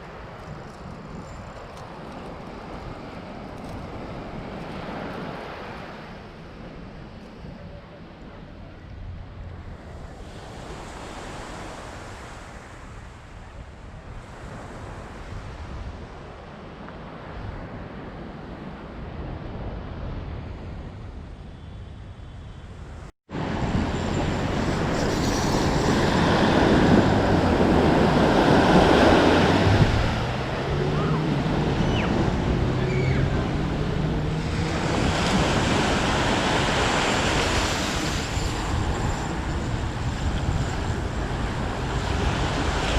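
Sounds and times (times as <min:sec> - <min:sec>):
wind buffeting microphone: 0:00.0 - 0:42.9
sea waves washing on shore: 0:23.3 - 0:42.9
low hum rising in pitch: 0:23.4 - 0:36.6.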